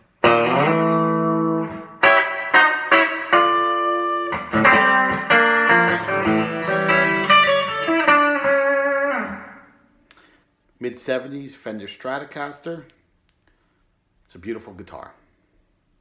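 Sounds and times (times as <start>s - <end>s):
electric guitar chords and notes: 0.0s - 9.9s.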